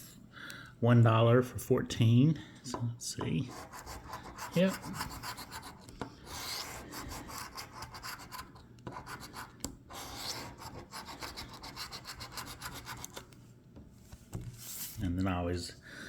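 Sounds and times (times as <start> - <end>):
lottery ticket being scratched: 3.4 - 13.3.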